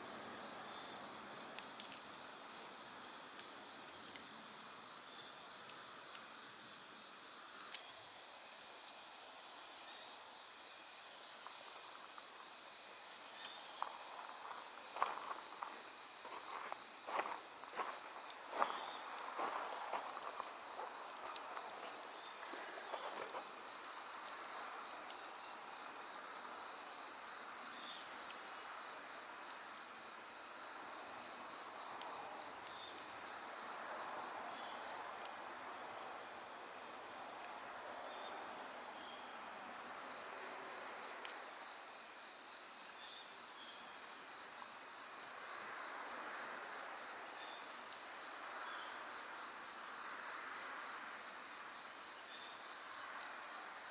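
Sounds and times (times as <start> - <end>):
insects chirping: 0.0 - 53.9
wood fire crackling: 11.4 - 28.7.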